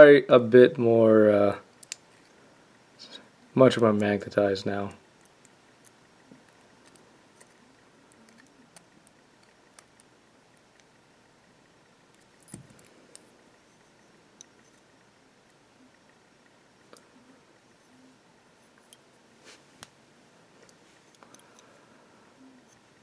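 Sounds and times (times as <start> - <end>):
small parts clicking: 1.7 - 2.4, 5.1 - 11.0, 12.1 - 16.2, 20.6 - 21.8.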